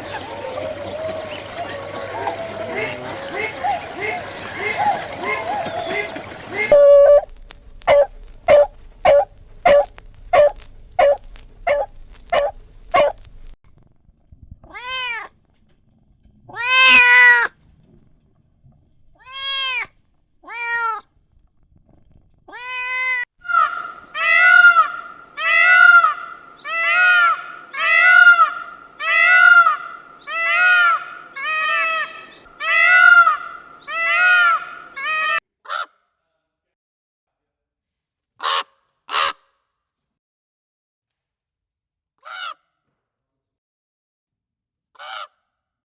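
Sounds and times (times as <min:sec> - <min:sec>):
quick short calls: 0:00.0 - 0:07.3
cat meowing: 0:16.6 - 0:17.5.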